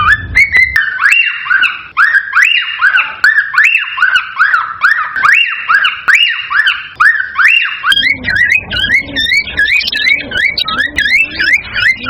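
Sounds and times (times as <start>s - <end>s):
low rumble: 0.0s - 0.9s
cockatiels calling: 0.0s - 12.0s.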